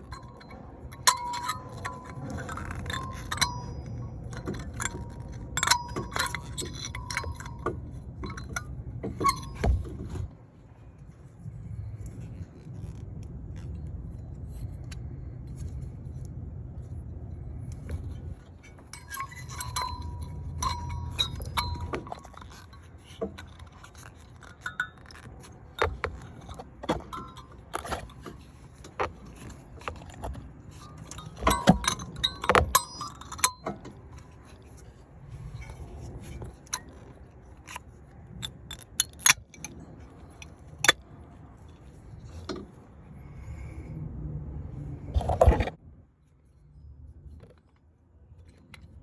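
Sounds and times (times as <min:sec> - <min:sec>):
metal tools clinking: 0:00.0 - 0:10.4, 0:17.3 - 0:43.6.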